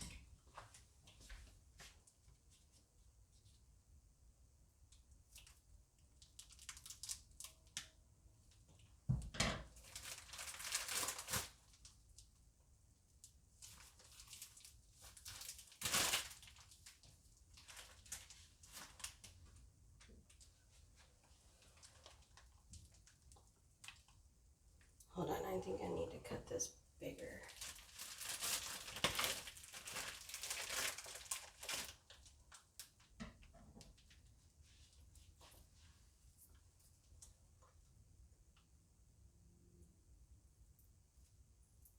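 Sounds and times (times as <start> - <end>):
plastic bag crinkling: 6.2 - 7.7, 9.8 - 12.0, 13.6 - 19.5, 27.2 - 33.0.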